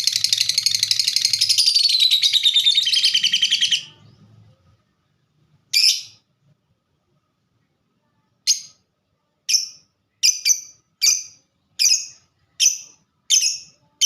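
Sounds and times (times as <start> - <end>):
bird chattering trill: 0.0 - 4.0.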